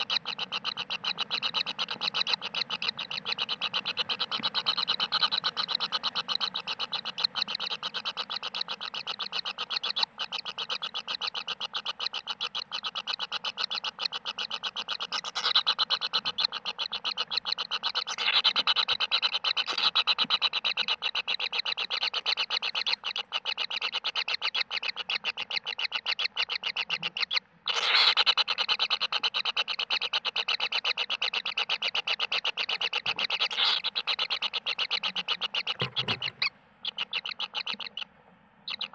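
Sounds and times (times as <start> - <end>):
animal rasping pulse calls: 33.1 - 38.1.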